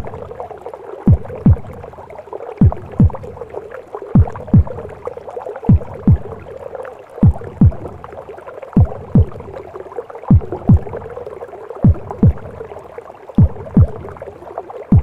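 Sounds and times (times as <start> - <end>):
heartbeat double thump: 1.1 - 1.9, 2.6 - 3.4, 4.2 - 4.9, 5.7 - 6.5, 7.2 - 8.0, 8.8 - 9.6, 10.3 - 11.1, 11.8 - 12.6, 13.4 - 14.2.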